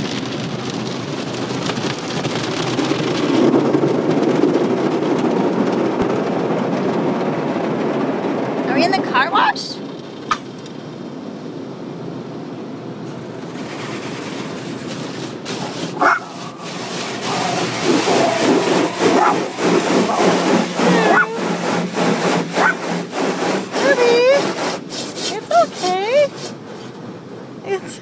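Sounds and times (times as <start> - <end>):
water spray rushing: 13.1 - 26.9
dog whining: 17.3 - 21.4, 22.6 - 22.8.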